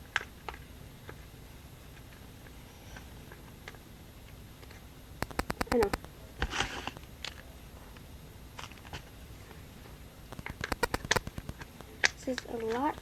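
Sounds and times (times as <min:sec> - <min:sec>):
dough clicks and crackles: 0:00.0 - 0:13.0.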